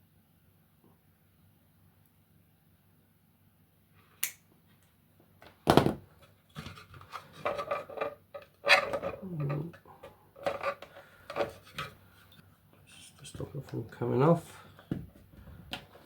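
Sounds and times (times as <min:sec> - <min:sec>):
plastic parts rubbing and scraping: 0:06.2 - 0:09.8, 0:10.4 - 0:12.4.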